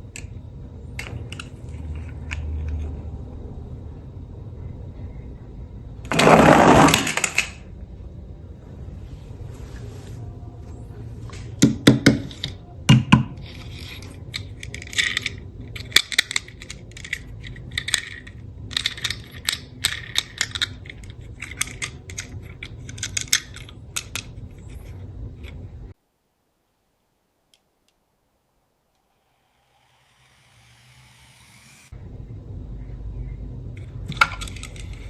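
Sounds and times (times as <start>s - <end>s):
steady low hum: 0.0s - 26.1s, 28.0s - 35.0s
plastic toy cars clattering: 0.1s - 3.2s, 6.0s - 7.7s, 10.6s - 25.8s, 33.8s - 35.0s.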